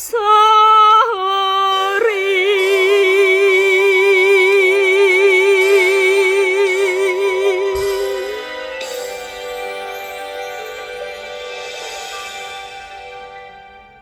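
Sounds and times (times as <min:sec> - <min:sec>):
woman singing a ballad: 0:00.0 - 0:10.9.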